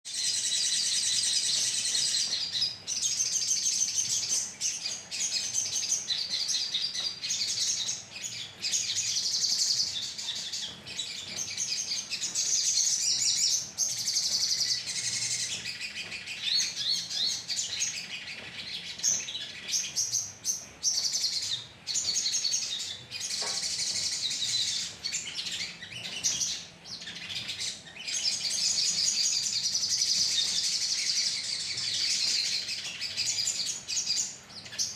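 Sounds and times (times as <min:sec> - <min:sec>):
flock of birds chirping: 0:00.1 - 0:34.9.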